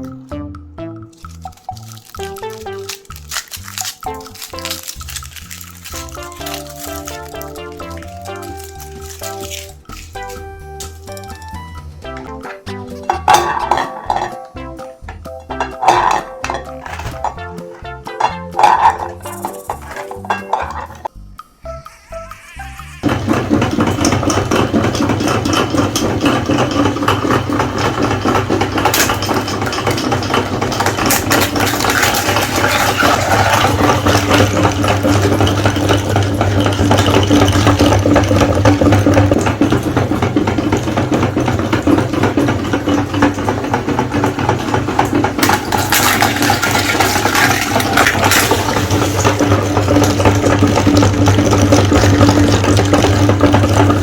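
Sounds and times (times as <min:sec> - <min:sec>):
electric meat grinder running: 0:21.9 - 0:54.0.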